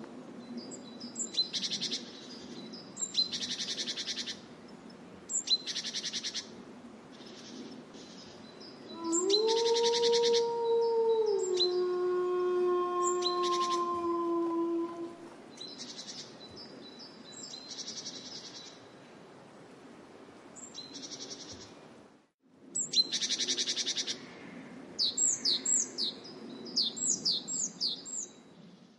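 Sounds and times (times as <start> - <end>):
low outdoor background: 0.0 - 28.9
small songbirds calling: 0.4 - 4.4
wolf howl: 8.9 - 15.4.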